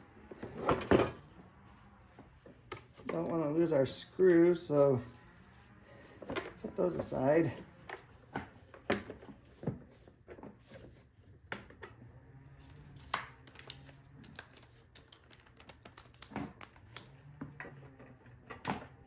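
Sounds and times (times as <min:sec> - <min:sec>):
metal parts and tools clicking: 0:12.6 - 0:17.1.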